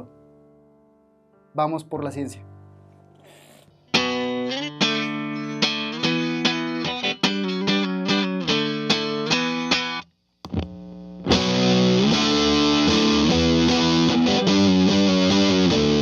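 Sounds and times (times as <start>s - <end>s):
electric guitar with fuzz distortion: 3.9s - 16.0s.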